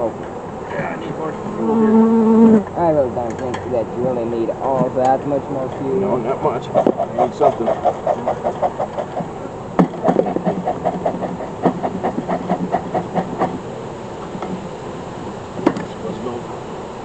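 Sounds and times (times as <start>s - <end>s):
smoker bellows puffing: 0.0s - 17.0s
sharp knocks: 6.8s - 13.6s, 15.6s - 16.0s.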